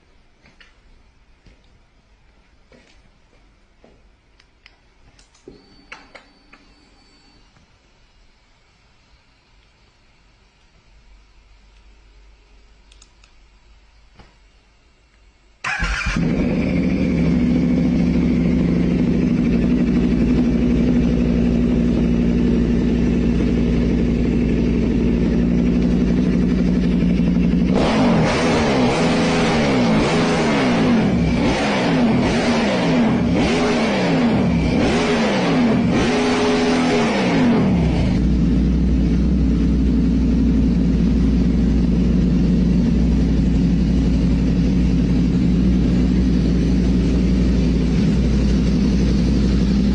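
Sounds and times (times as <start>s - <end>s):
atv engine idling and revving: 15.7s - 49.9s.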